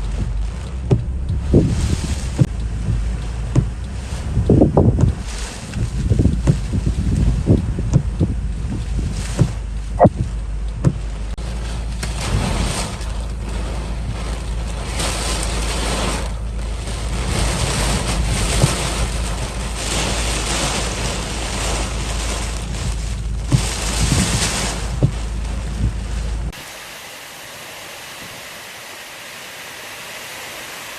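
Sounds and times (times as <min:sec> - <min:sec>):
short thumps: 0:00.0 - 0:05.2, 0:05.8 - 0:11.1, 0:22.8 - 0:26.0
wind buffeting microphone: 0:00.0 - 0:26.6.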